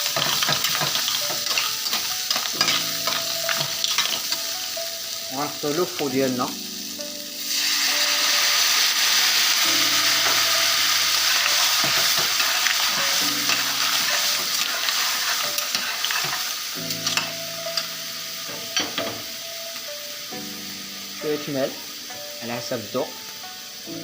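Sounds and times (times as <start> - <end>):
utensil clinking on pan: 0.0 - 4.4
sauce sizzling in a pan: 0.0 - 24.0.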